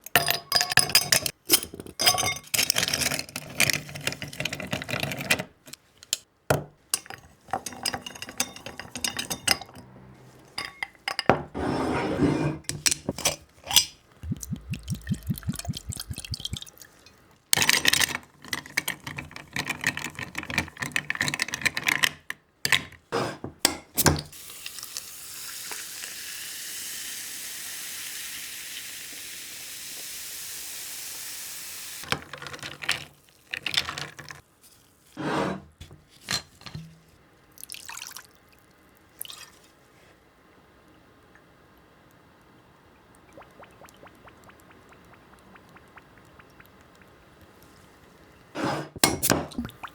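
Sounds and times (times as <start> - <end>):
carbonated soda fizzing: 13.6 - 17.5, 24.3 - 32.1
liquid pouring: 13.6 - 17.8, 37.6 - 39.6, 43.1 - 48.4, 49.4 - 49.9
ice cubes clinking in a glass: 17.6 - 20.4.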